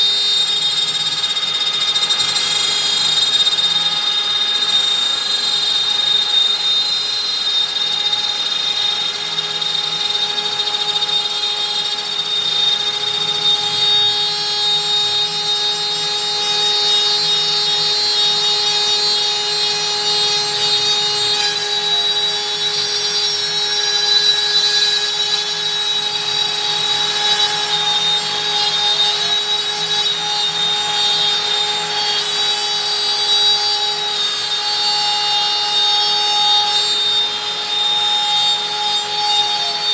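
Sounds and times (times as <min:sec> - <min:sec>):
router bit cutting wood: 0:00.0 - 0:39.9
router spindle whine: 0:00.0 - 0:39.9.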